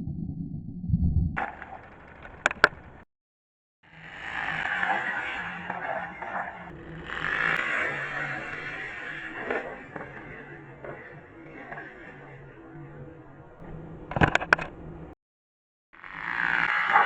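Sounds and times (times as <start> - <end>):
sharp plastic clacks: 1.9 - 2.9, 14.1 - 14.8.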